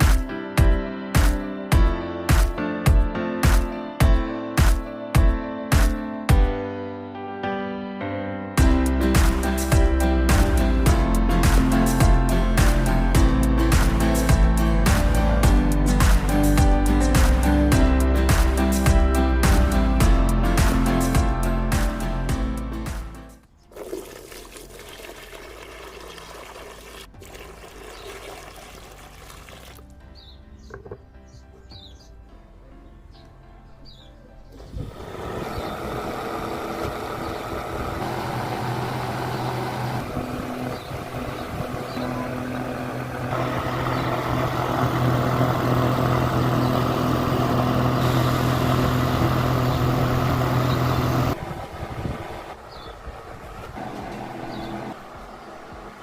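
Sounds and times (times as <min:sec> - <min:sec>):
water pouring: 0:23.6 - 0:30.0
bird chirping: 0:27.8 - 0:28.3, 0:30.1 - 0:34.8, 0:35.4 - 0:36.0, 0:40.6 - 0:42.5, 0:52.6 - 0:53.1, 0:53.8 - 0:55.6
electric fan humming: 0:34.6 - 0:56.0.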